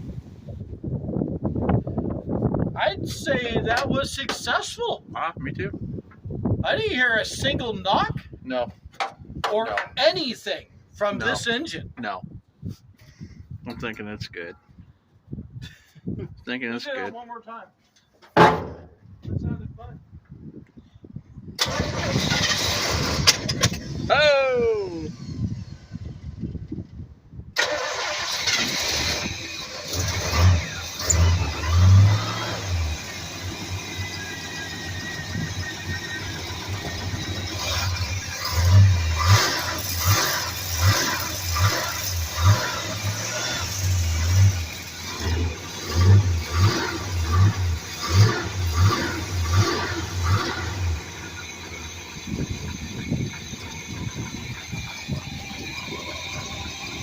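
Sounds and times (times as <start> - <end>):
engine cranking with low thumps: 21.6 - 24.2, 24.8 - 57.0
vehicle engine running and revving: 29.0 - 57.0.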